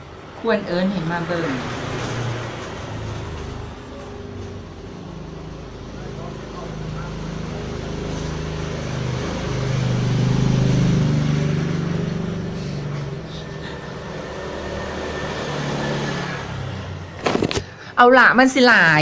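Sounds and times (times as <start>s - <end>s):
vehicle engine hum passing: 0.0s - 17.8s.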